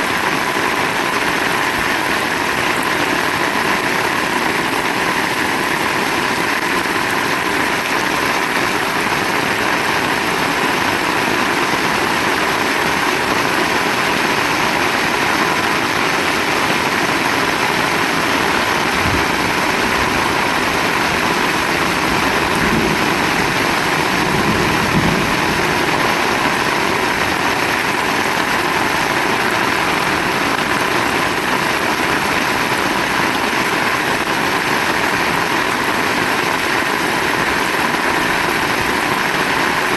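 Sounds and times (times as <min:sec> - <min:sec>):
heavy rain: 0:00.0 - 0:39.9
low rumble: 0:18.5 - 0:27.4.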